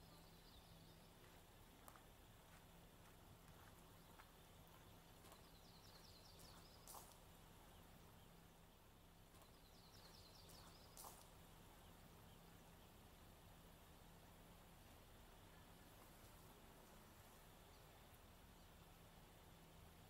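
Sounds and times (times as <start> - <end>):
small bird singing: 0.0 - 2.6, 3.4 - 13.4
faint low hum: 0.0 - 20.0.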